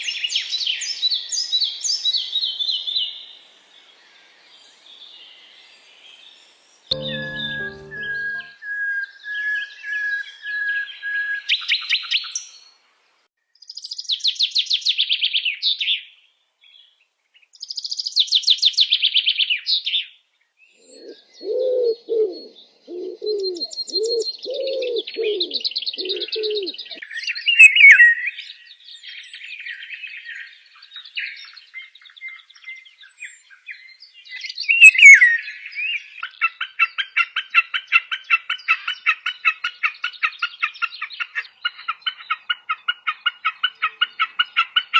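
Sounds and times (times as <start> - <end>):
low hooting notes: 6.9 - 8.5.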